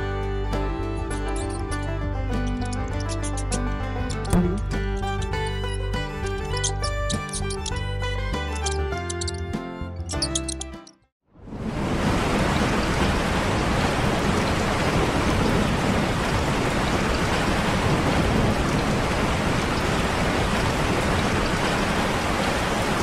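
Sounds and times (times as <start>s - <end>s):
rain on the ground: 11.5s - 23.0s.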